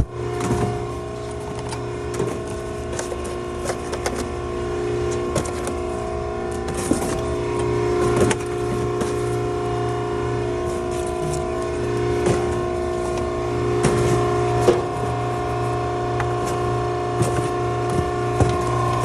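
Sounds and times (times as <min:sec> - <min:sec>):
hydraulic power unit humming: 0:00.0 - 0:19.0.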